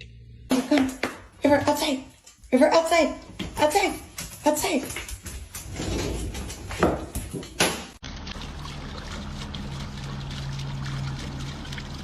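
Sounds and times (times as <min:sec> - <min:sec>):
running water: 0:08.0 - 0:12.0.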